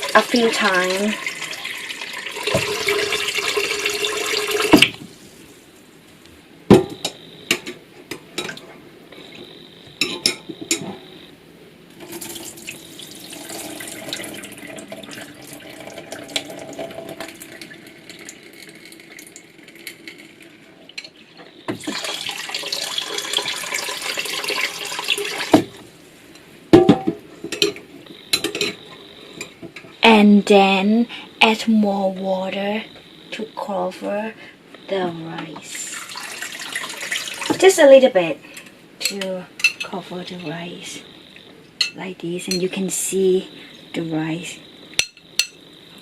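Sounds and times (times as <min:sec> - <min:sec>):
water swishing and draining: 0:00.0 - 0:04.8, 0:12.0 - 0:21.1, 0:21.7 - 0:25.6, 0:35.7 - 0:37.5
water running into a bowl: 0:00.0 - 0:05.0, 0:12.0 - 0:25.8, 0:35.7 - 0:37.7
bowl clinking and knocking: 0:26.8 - 0:27.8.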